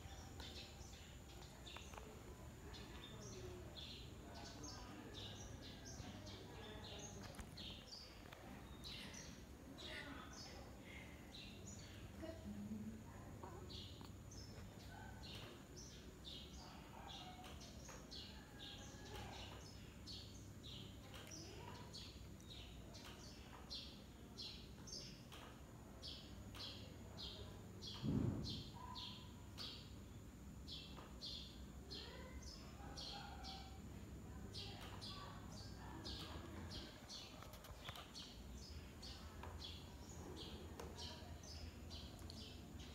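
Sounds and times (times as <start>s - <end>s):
low thump: 28.0s - 28.6s.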